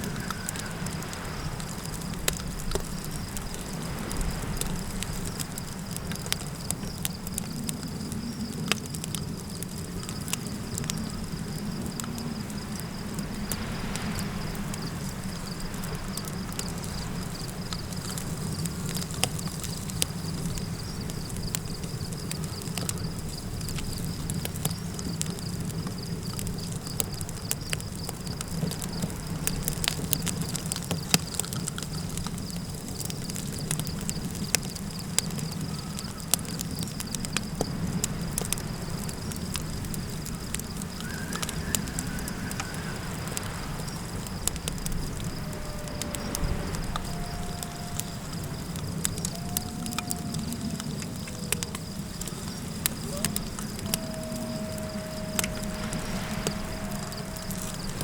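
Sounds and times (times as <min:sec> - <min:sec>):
faint wavering animal call: 0:00.0 - 0:01.2, 0:40.9 - 0:44.1, 0:44.8 - 0:58.0
campfire crackling and popping: 0:00.0 - 0:58.0
insect chirr: 0:00.0 - 0:58.0
low wind rumble: 0:00.0 - 0:58.0.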